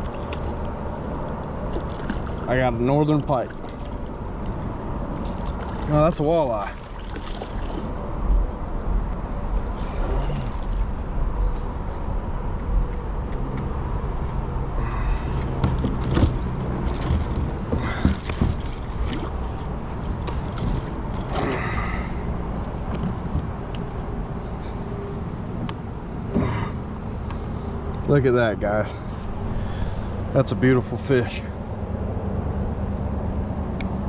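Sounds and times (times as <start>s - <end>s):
knocks and scrapes in kayak: 15.4s - 21.6s.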